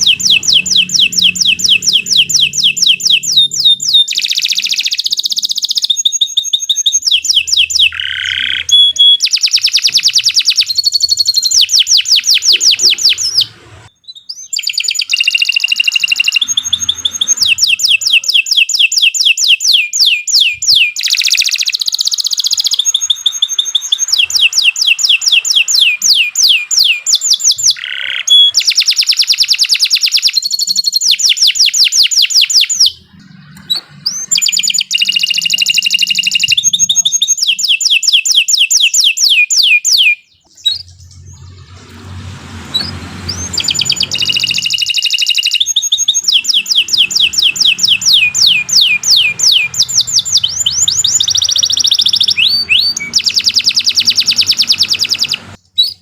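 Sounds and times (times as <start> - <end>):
low hum: 0.0 - 4.2, 12.1 - 13.9, 15.6 - 18.3, 32.7 - 36.7, 40.4 - 55.6
canary singing trills: 0.0 - 56.0.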